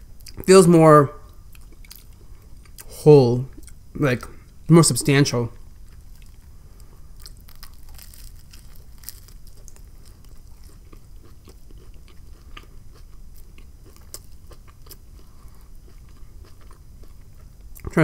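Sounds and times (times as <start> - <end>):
chewing crusty bread: 1.3 - 2.9, 5.8 - 18.0.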